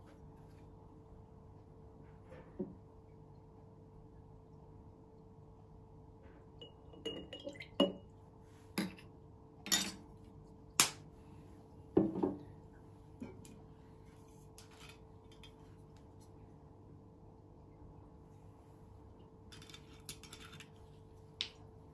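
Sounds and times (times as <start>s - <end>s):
faint steady hum: 0.0s - 21.9s
glass clinking and knocking: 6.6s - 8.0s.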